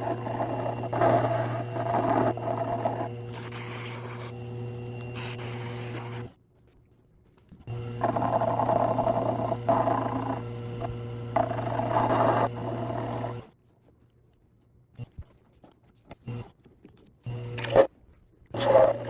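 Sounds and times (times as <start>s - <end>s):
power tool running on steel: 0.0s - 6.3s, 7.7s - 13.5s, 17.3s - 17.9s, 18.6s - 19.0s
tool scraping metal: 0.0s - 6.3s.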